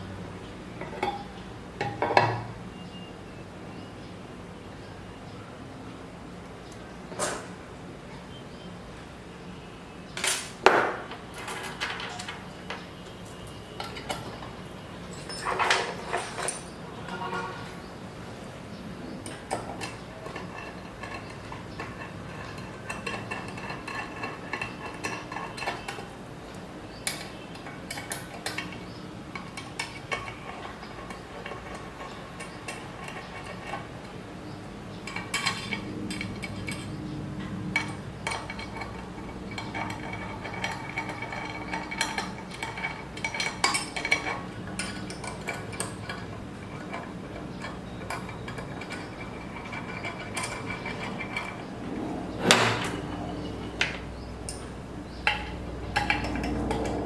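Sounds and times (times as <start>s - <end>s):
metal parts and tools clinking: 0.8s - 2.5s, 10.2s - 17.8s, 19.1s - 57.0s.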